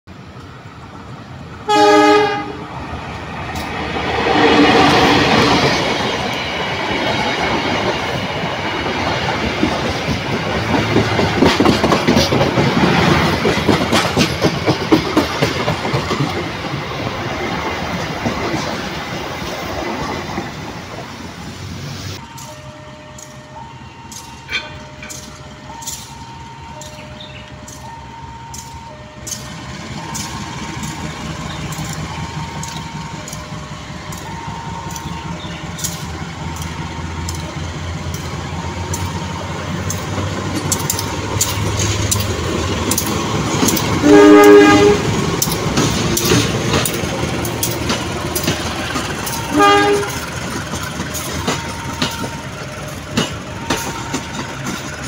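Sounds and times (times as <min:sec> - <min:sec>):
locomotive horn blast: 0:01.7 - 0:02.7, 0:44.0 - 0:45.3, 0:49.3 - 0:50.3
train wheels clacking over rail joints: 0:03.4 - 0:21.0, 0:24.0 - 0:55.0.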